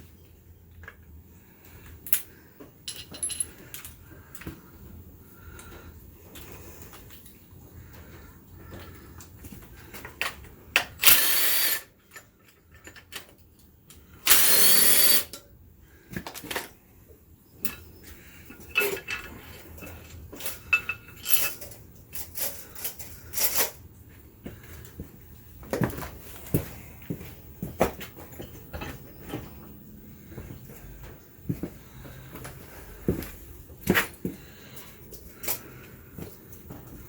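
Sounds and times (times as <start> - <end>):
metal clinks and knocks: 2.8 - 4.0, 17.6 - 23.8
power tool bursts: 11.0 - 11.9, 14.2 - 15.3.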